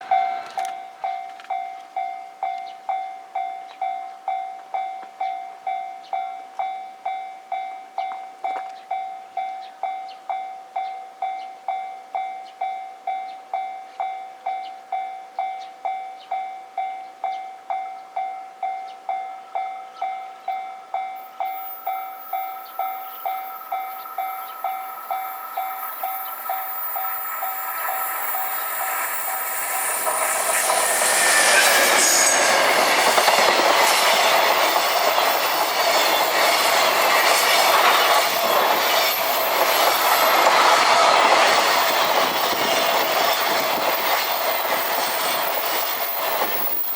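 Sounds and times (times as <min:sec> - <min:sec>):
approaching train hiss and whine: 0:00.0 - 0:01.6, 0:20.4 - 0:46.9
level-crossing bell ringing: 0:00.0 - 0:46.9.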